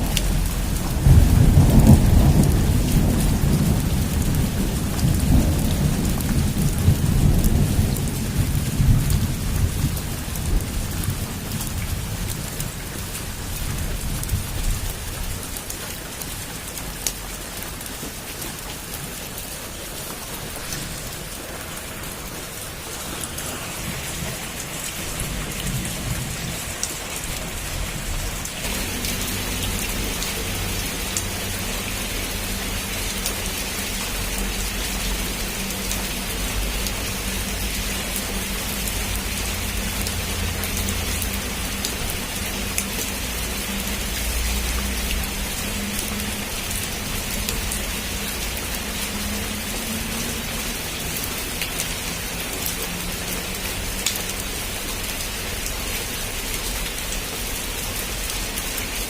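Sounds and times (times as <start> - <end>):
thunder rumble: 0.0 - 15.7, 19.1 - 48.5
heavy rain on a roof: 0.0 - 59.0.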